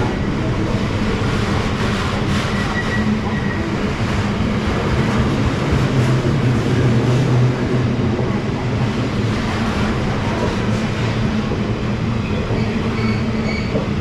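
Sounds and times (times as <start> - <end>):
train rumble and wheel clatter: 0.0 - 14.0
high wheel squeal: 2.5 - 3.8, 12.3 - 13.8.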